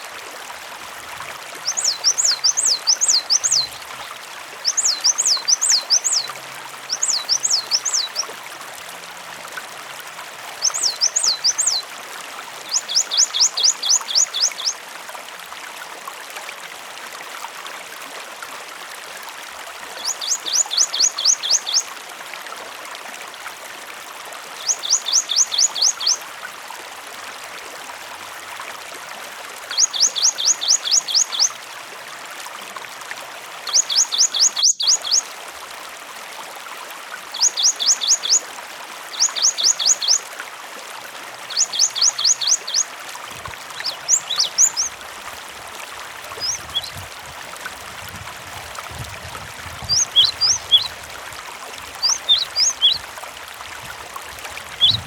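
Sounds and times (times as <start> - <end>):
running water stream: 0.0 - 55.0.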